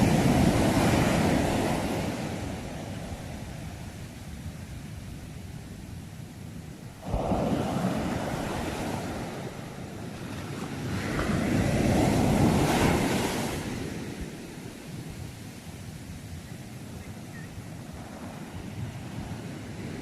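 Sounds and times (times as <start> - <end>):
sea waves breaking: 0.0 - 4.4, 6.9 - 20.0.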